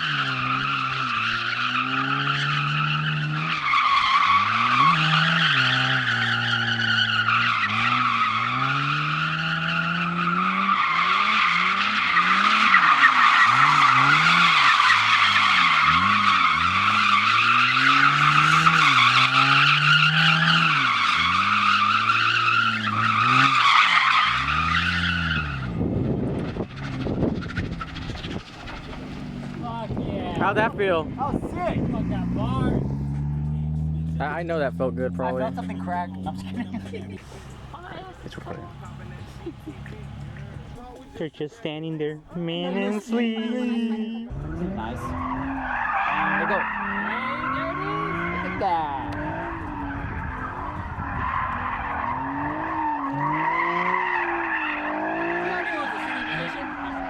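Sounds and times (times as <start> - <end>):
tyres squealing: 0.0 - 25.7, 26.6 - 41.6, 44.2 - 57.0
car engine revving: 0.0 - 41.4, 42.0 - 57.0
wind noise: 25.6 - 33.0, 48.1 - 52.6.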